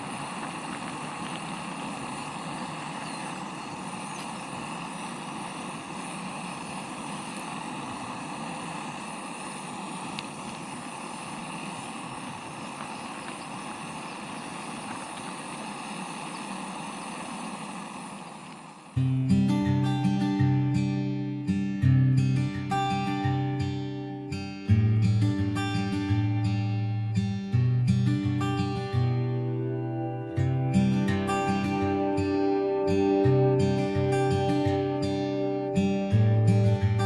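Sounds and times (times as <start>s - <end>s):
faint steady high tones: 28.6s - 37.0s.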